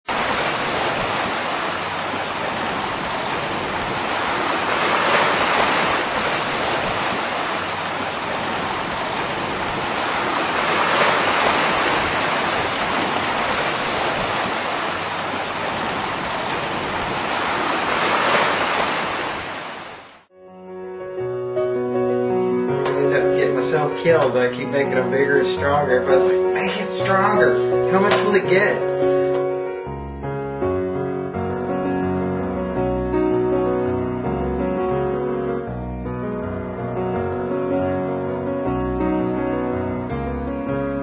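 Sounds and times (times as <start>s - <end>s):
ocean waves breaking: 0.0s - 20.3s
piano music: 1.0s - 13.6s, 20.3s - 41.0s.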